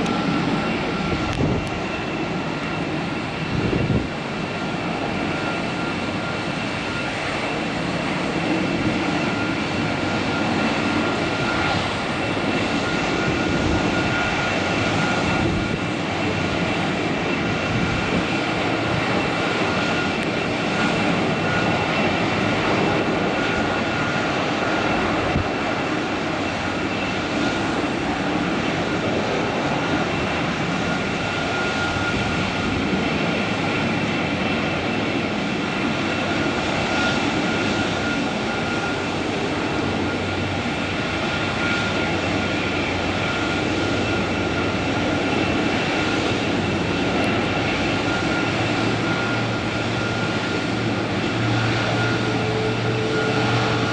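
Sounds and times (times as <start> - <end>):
high-pitched engine whine: 0.0 - 53.9
jet engines running: 0.0 - 53.9.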